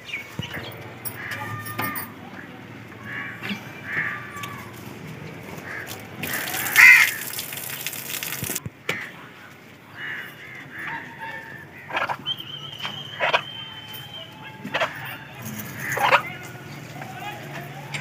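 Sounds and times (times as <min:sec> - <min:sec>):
birds cawing: 0:01.1 - 0:04.8, 0:05.6 - 0:08.4, 0:15.7 - 0:16.3.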